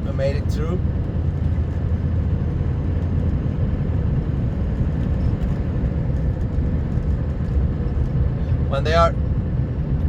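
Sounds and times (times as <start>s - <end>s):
truck engine rumbling: 0.0s - 10.0s.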